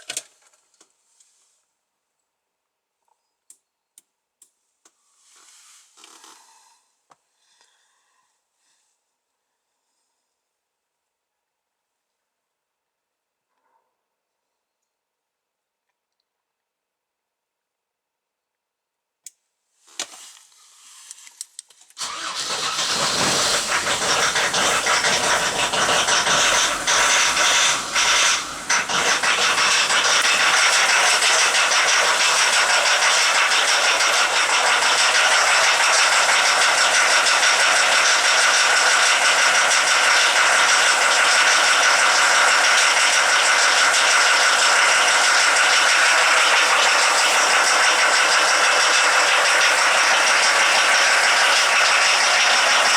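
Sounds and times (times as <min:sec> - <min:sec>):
click: 0:03.4 - 0:05.0
diesel engine cranking: 0:22.0 - 0:52.9
diesel engine running: 0:22.0 - 0:52.9.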